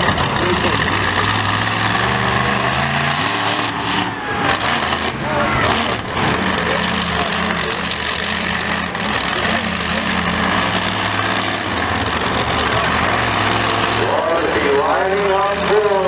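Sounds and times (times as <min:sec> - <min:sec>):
large vehicle engine idling: 0:00.0 - 0:16.0.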